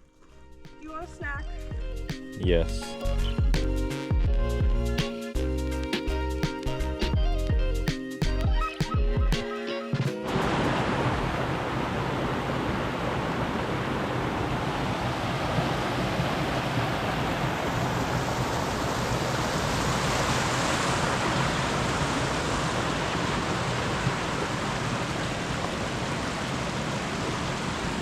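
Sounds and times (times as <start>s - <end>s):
steady rushing noise: 10.2s - 28.0s.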